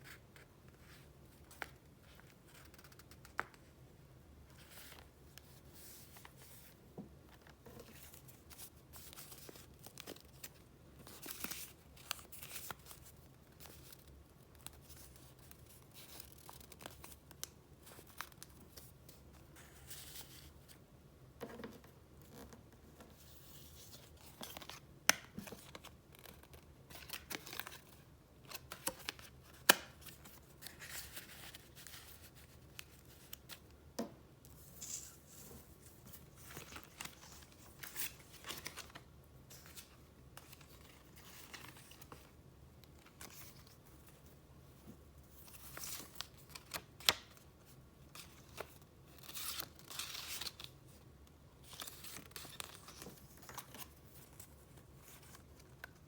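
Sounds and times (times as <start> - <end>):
paper rustling and crinkling: 21.8 - 33.6, 34.5 - 42.4.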